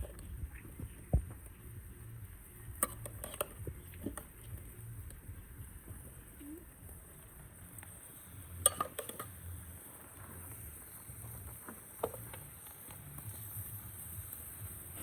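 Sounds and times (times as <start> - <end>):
low background rumble: 0.0 - 8.7
dishes and utensils clinking: 8.6 - 9.4.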